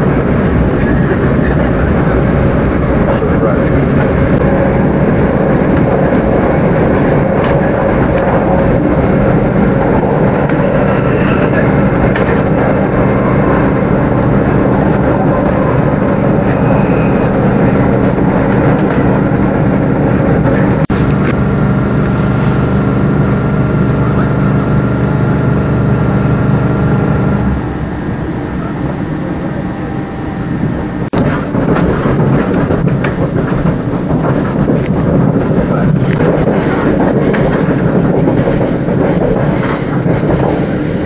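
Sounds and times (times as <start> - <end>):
hum of steady tones: 0.0 - 41.0
wheels rumbling on rail: 0.0 - 41.0.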